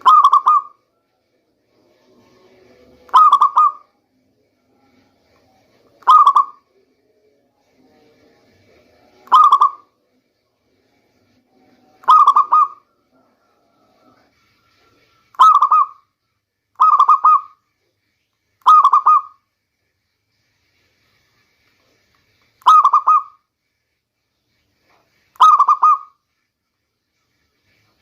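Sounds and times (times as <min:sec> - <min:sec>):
dove cooing: 0:00.0 - 0:00.8, 0:03.1 - 0:03.9, 0:06.0 - 0:06.6, 0:09.3 - 0:09.9, 0:12.0 - 0:12.9, 0:15.4 - 0:16.0, 0:16.8 - 0:17.6, 0:18.7 - 0:19.4, 0:22.6 - 0:23.3, 0:25.4 - 0:26.2.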